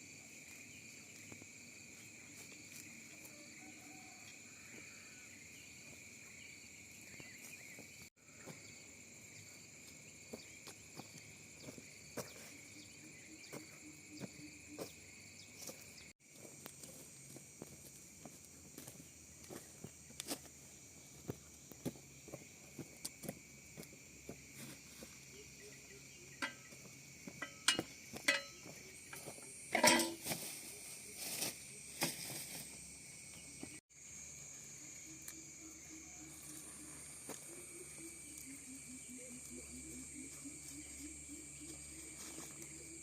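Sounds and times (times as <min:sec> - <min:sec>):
high drone of insects: 0:00.0 - 0:43.0.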